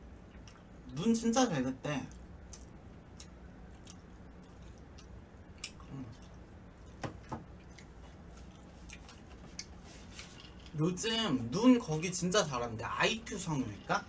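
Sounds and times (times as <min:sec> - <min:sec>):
low steady hum: 0:00.0 - 0:14.0
person chewing: 0:00.2 - 0:00.7, 0:02.1 - 0:10.4.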